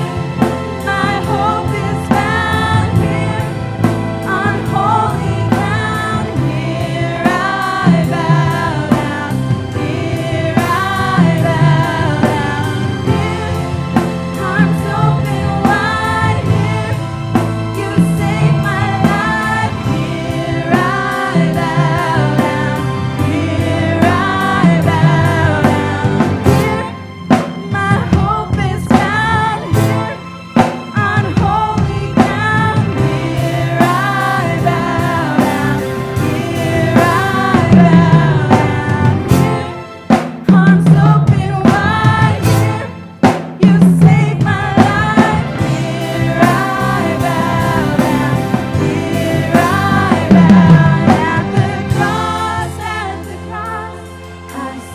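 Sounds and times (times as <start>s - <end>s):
gospel band playing: 0.0s - 54.9s
person singing: 27.7s - 30.3s, 30.9s - 39.8s.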